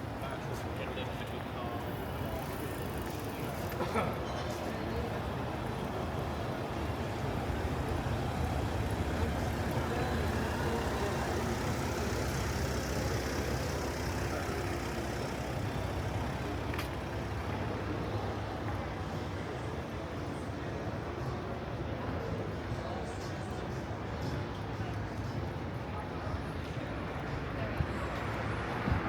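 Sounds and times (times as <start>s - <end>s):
city street traffic: 0.0s - 29.0s
heavy vehicle engine rumble: 3.4s - 20.4s.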